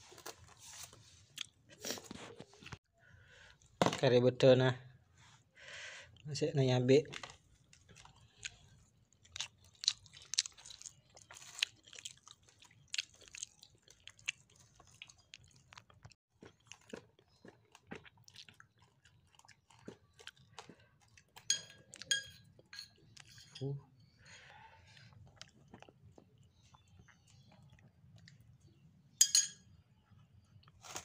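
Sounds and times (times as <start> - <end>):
chewing and crunching food: 0.0 - 3.8, 7.0 - 23.4, 24.0 - 29.2, 30.0 - 31.0
spoon clinking on a plate: 21.5 - 23.6, 29.2 - 29.7.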